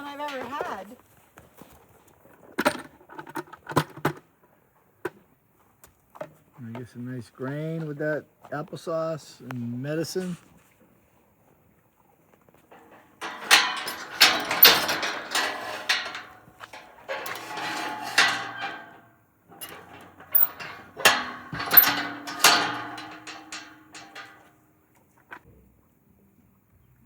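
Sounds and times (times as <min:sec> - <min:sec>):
sharp knocking and clattering: 0:12.7 - 0:24.6.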